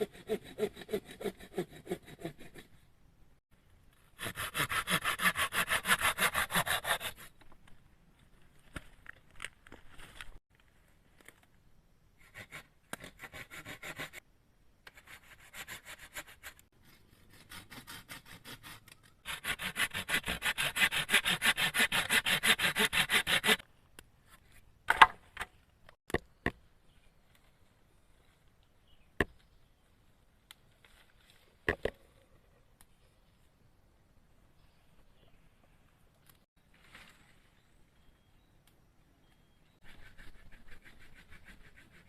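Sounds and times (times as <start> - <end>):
hand saw cutting wood: 0.0 - 2.7, 4.2 - 7.3, 12.2 - 14.2, 17.3 - 23.6.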